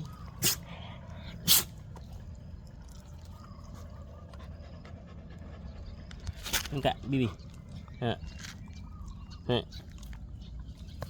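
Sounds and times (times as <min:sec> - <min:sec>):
dog sneezing: 0:00.4 - 0:00.6, 0:01.4 - 0:01.7.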